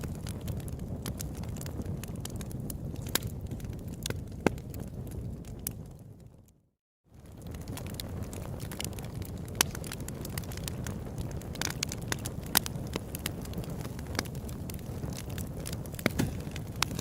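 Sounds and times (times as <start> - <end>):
campfire crackling and popping: 0.0 - 6.6, 7.2 - 17.0.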